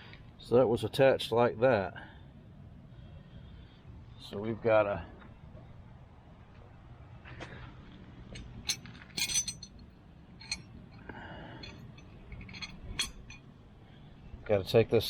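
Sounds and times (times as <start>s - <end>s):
metal parts and tools clinking: 8.3s - 9.8s, 10.4s - 10.7s, 11.5s - 13.5s.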